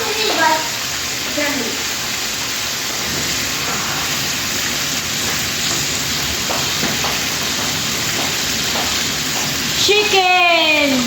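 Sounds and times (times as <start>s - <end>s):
chicken deep-frying in oil: 0.0s - 11.0s.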